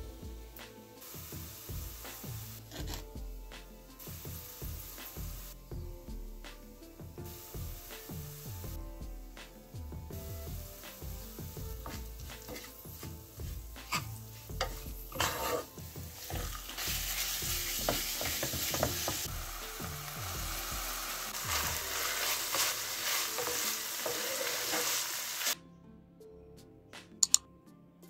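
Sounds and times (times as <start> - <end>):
onions and meat sizzling in pan: 0.0 - 25.6
wooden spatula scraping pan: 2.7 - 3.0, 11.8 - 13.1, 13.8 - 19.2, 21.4 - 25.2.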